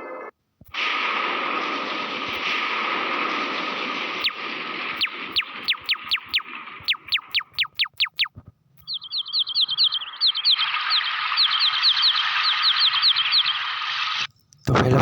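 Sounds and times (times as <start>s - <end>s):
fast trill of chirps: 3.6s - 14.3s
quick falling bird chirps: 3.6s - 14.3s.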